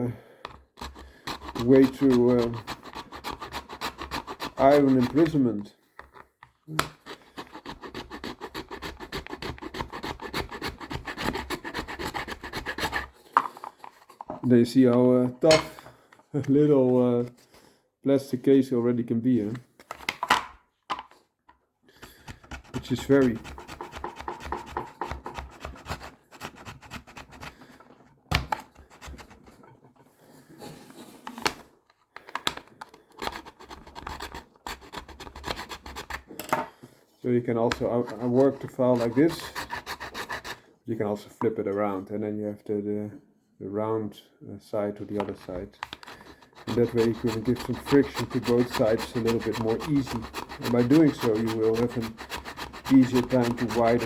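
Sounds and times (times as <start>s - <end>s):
file rasping against plastic: 0.5s - 5.4s, 6.8s - 13.2s, 22.0s - 30.0s, 32.9s - 36.3s, 37.7s - 40.7s, 45.3s - 54.0s.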